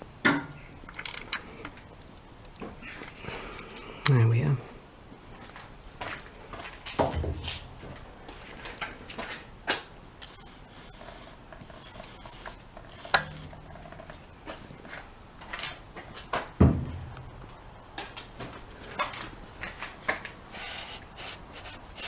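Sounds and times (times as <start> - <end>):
objects clicking and knocking: 8.8 - 15.8
heavy thumps: 16.6 - 17.6.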